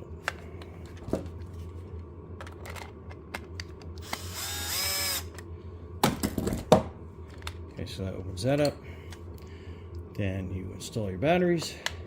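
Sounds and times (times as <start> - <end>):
electric screwdriver whirring: 4.0 - 5.4.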